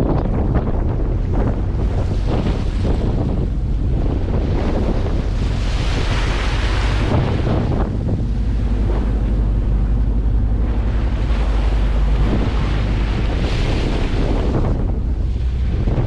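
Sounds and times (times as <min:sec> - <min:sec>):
waves washing: 0:00.0 - 0:16.0
wind buffeting microphone: 0:00.0 - 0:16.0.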